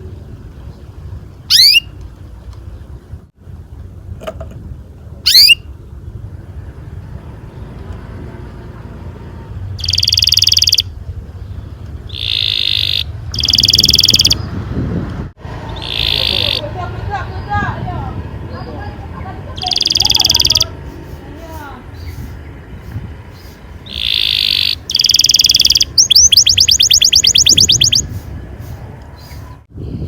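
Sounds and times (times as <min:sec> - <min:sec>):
canary singing: 0:01.5 - 0:02.0, 0:05.2 - 0:05.7, 0:09.7 - 0:14.6, 0:15.5 - 0:29.6.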